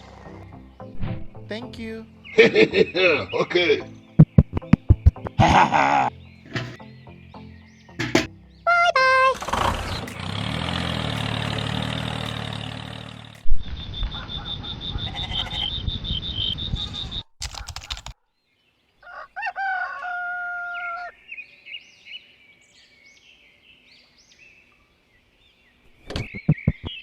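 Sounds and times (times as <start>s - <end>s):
small engine running loudly: 9.4s - 13.4s
faint bird chirps: 13.6s - 17.3s
rooster crowing: 19.0s - 21.2s.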